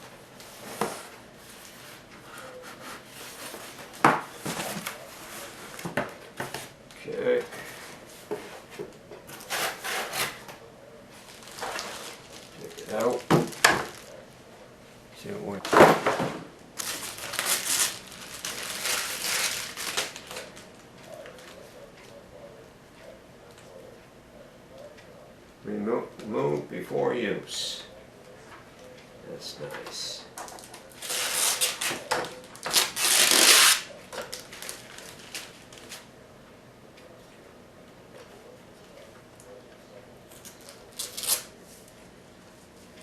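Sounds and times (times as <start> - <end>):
plastic packaging crinkling: 11.1 - 14.2, 16.8 - 21.5, 30.5 - 36.1, 40.4 - 41.5.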